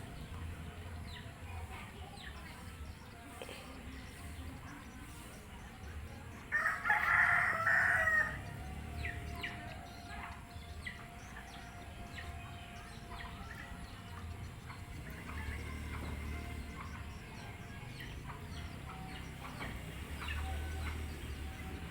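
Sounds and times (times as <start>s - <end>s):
rooster crowing: 6.5s - 8.5s.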